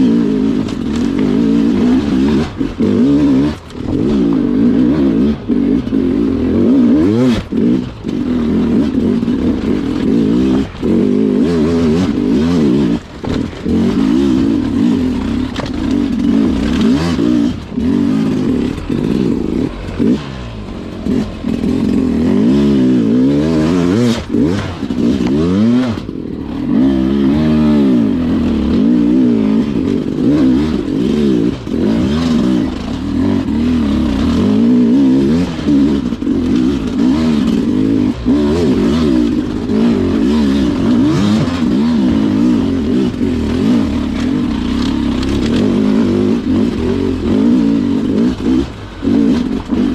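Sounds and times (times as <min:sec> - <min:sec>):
dirt bike engine revving: 0:00.0 - 0:49.9
knocks and clatter: 0:00.1 - 0:26.8.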